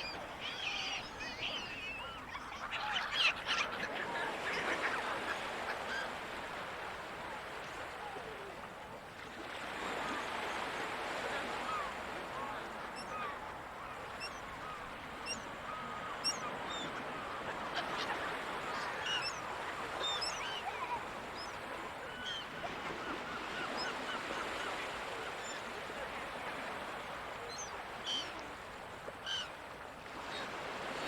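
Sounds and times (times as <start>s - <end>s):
gulls calling: 0.0s - 8.5s, 9.8s - 25.6s, 29.2s - 29.6s
ocean surf: 0.0s - 31.0s.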